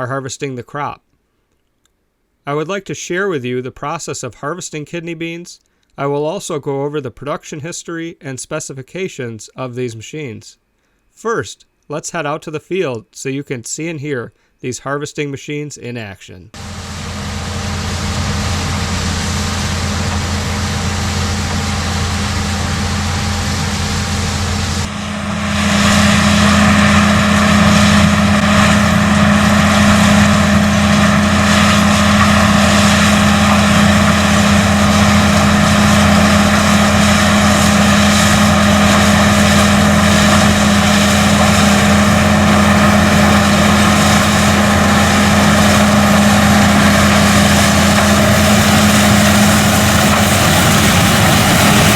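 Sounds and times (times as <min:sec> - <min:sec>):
combine machinery noise: 0:16.6 - 0:51.9
tractor engine hum: 0:16.6 - 0:51.9.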